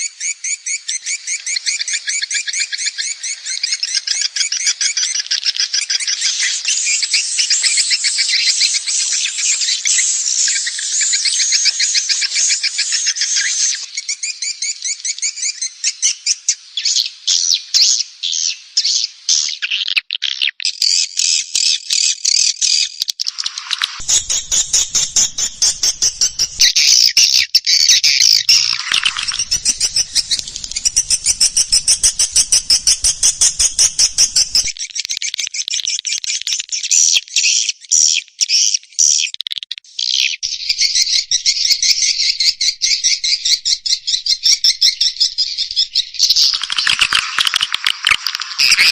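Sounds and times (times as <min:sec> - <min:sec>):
swiftlets chirping: 0:24.0 - 0:26.8, 0:28.6 - 0:34.8.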